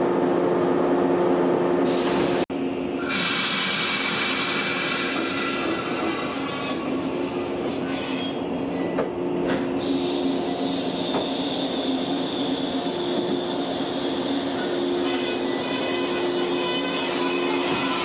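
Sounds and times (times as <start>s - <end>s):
train wheel squeal: 3.0s - 9.0s, 9.8s - 18.0s.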